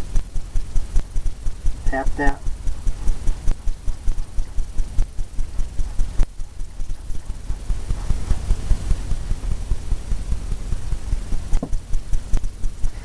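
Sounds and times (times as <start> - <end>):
brush tapping on canvas: 11.5 - 12.5.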